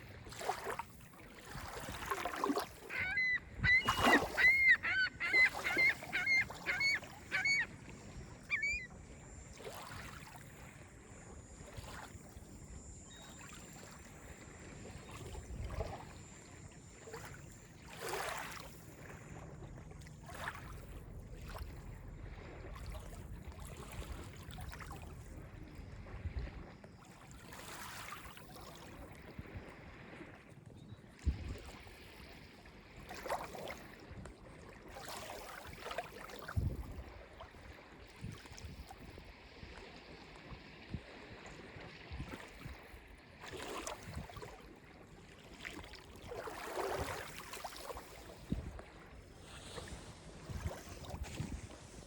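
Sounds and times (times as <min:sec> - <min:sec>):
lake waves lapping on beach: 0:00.0 - 0:52.0
geese honking: 0:02.9 - 0:07.7.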